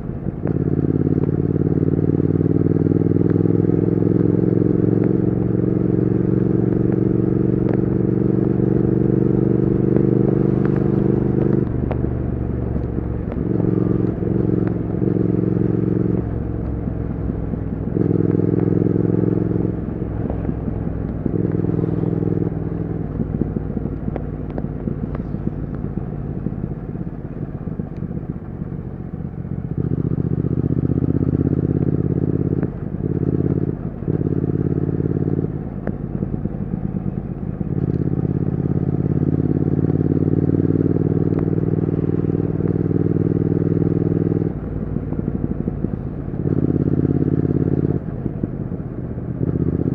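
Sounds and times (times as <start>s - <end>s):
motorcycle engine and exhaust running: 0.0s - 49.9s.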